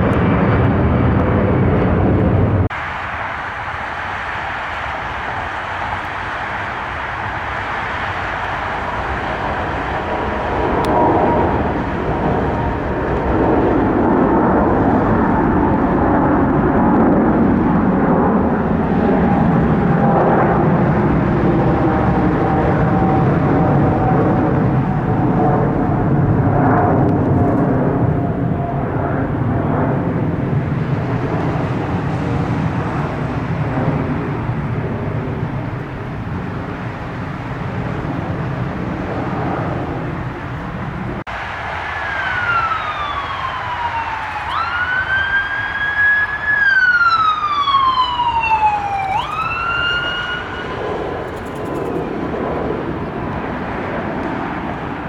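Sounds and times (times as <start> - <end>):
loud low rumble: 0.0 - 2.8
emergency siren wailing: 0.0 - 55.0.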